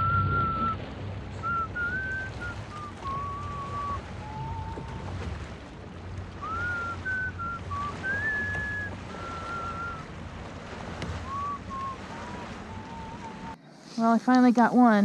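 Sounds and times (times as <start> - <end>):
person whistling a tune: 0.0 - 0.8, 1.4 - 5.0, 6.4 - 10.0, 11.2 - 13.5
low rumble: 0.0 - 13.6.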